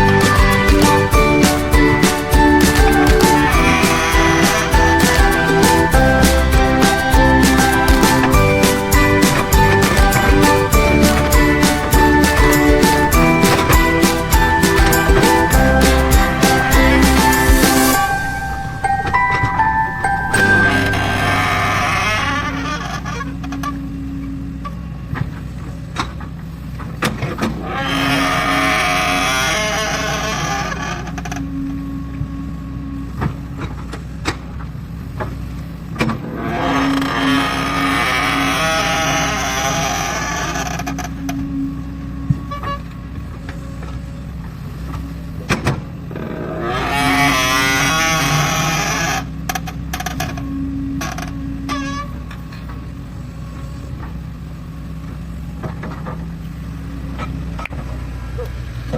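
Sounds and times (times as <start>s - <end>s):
excavator diesel engine running: 0.0s - 27.0s
excavator engine running: 0.0s - 58.9s.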